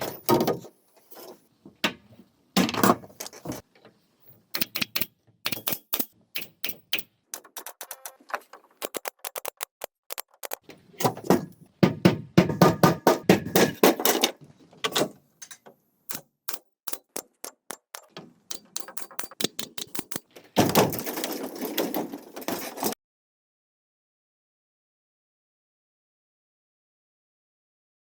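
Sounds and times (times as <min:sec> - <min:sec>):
knocks and clacks on bamboo: 0:04.5 - 0:23.0.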